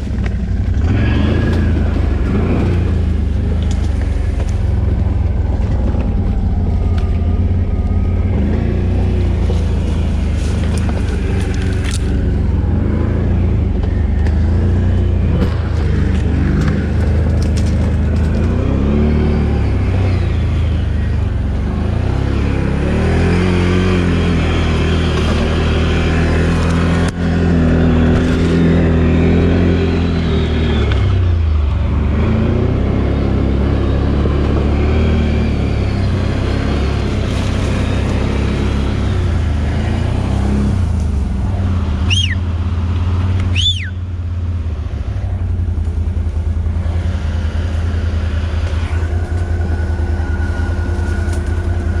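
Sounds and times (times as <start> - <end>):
atv engine revving under load: 0.0 - 52.0.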